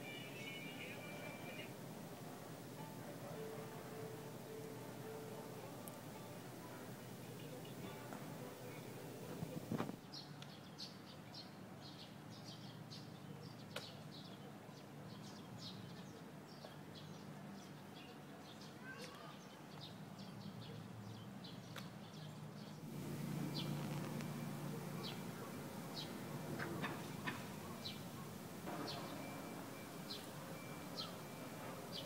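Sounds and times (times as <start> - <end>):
small birds chirping: 15.1 - 32.0
steady low hum: 22.9 - 32.0.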